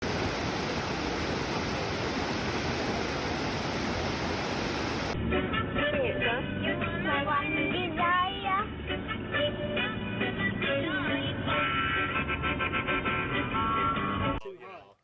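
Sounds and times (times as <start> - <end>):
steady hiss: 0.0 - 5.2
music with singing: 5.2 - 14.4.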